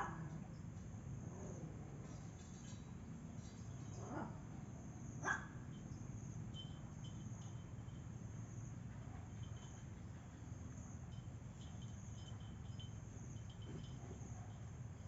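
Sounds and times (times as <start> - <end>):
insects chirping: 0.2 - 15.0
dog barking: 5.2 - 5.6.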